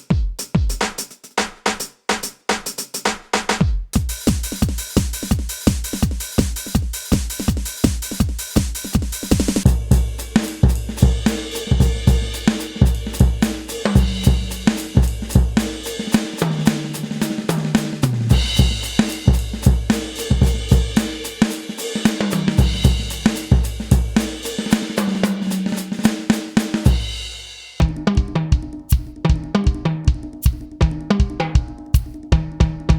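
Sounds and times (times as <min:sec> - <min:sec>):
electronic drum kit groove: 0:00.0 - 0:32.9
pitched tom hits: 0:09.6 - 0:26.2.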